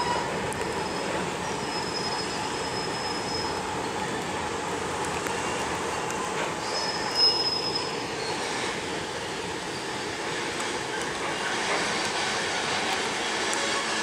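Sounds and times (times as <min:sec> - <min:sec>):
high wheel squeal: 0:00.0 - 0:03.6, 0:06.6 - 0:09.0
train wheels rumbling on rail: 0:00.0 - 0:14.0.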